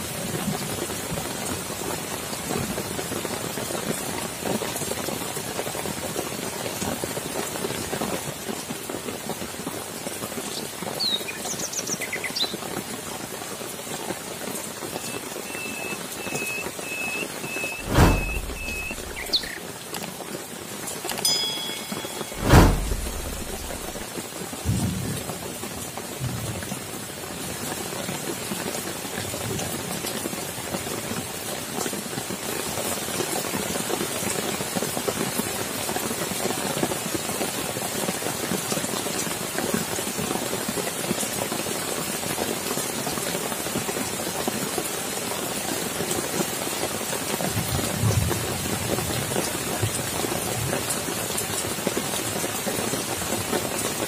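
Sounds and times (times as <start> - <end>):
rain falling on wet ground: 0.0 - 22.4, 23.4 - 54.0
low rumble of thunder: 17.8 - 19.5, 24.7 - 25.3.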